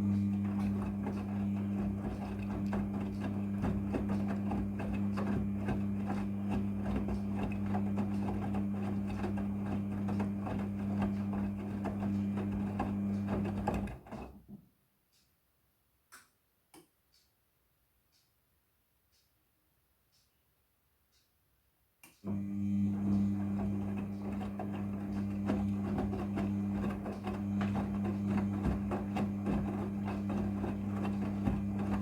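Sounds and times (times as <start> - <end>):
washing machine humming and rattling: 0.0 - 14.6, 22.3 - 32.0.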